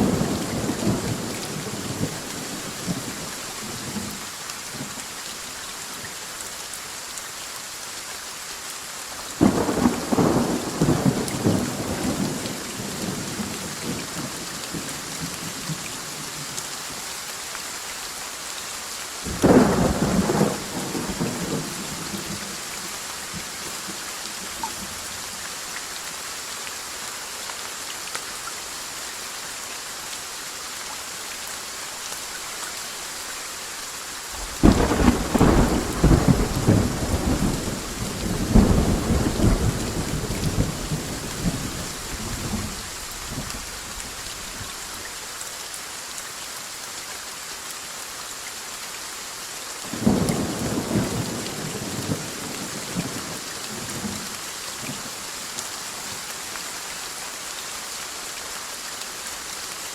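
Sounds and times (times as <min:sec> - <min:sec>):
steady rain: 0:00.0 - 0:59.9
rumbling thunderclaps: 0:34.4 - 0:43.6.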